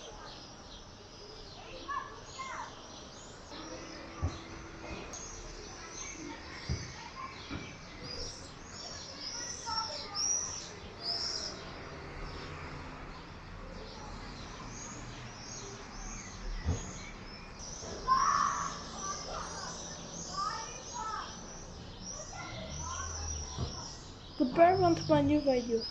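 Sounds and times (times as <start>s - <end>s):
swifts screaming: 14.7s - 25.9s.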